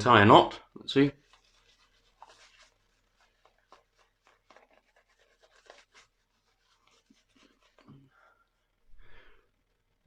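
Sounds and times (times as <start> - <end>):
shaving brush swishing lather: 1.0 - 7.9.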